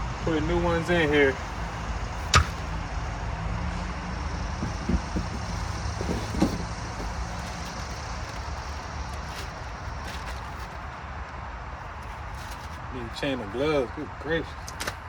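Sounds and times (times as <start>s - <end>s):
low engine hum: 0.0s - 11.1s
faint knocks: 4.6s - 7.3s.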